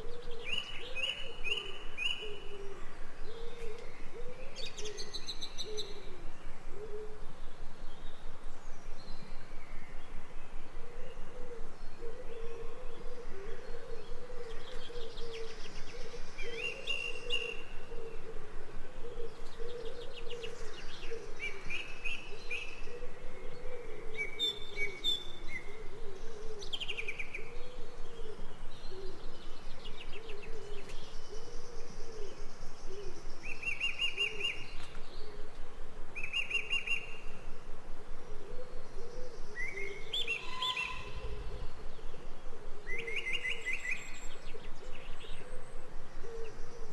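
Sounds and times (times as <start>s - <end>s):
birds chirping and trilling: 36.2s - 46.9s.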